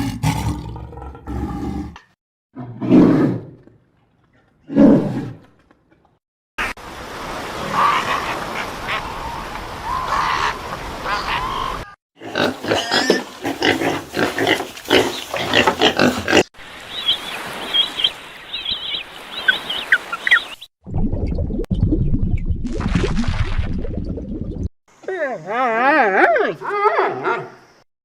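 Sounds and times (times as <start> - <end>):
high chirping calls: 16.9 - 20.7.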